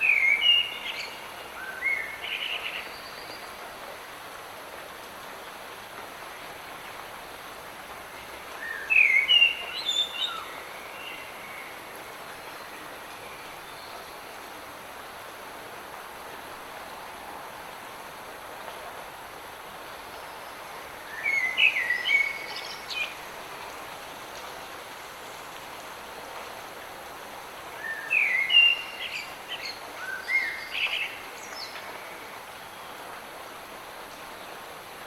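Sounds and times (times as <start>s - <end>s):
light rain hissing: 0.0s - 35.0s
songbird chirping: 19.8s - 23.7s, 27.8s - 33.2s.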